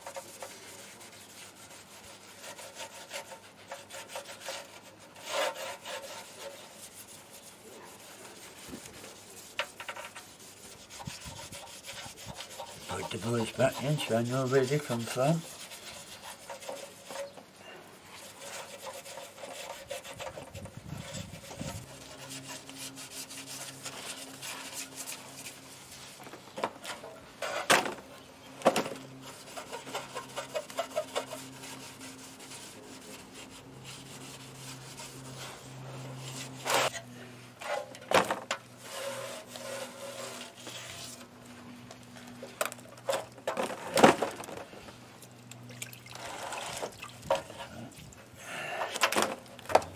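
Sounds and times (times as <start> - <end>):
scraping on metal parts: 2.4 - 17.5, 18.1 - 28.0, 28.6 - 33.2, 33.8 - 41.3.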